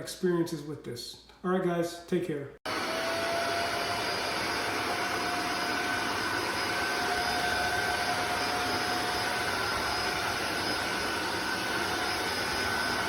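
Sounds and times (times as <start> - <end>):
vacuum motor rush and whine: 2.7 - 13.0.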